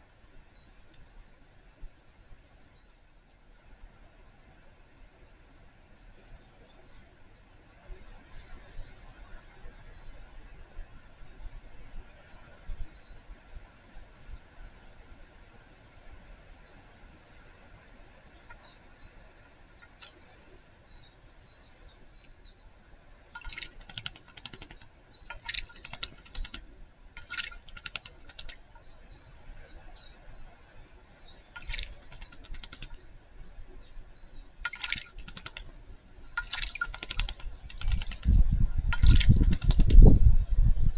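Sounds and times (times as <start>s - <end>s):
small birds chirping: 0.2s - 3.2s, 16.6s - 40.9s
rapid ticking: 23.4s - 26.6s, 27.2s - 28.6s, 31.6s - 33.0s, 34.7s - 35.8s, 36.4s - 38.4s.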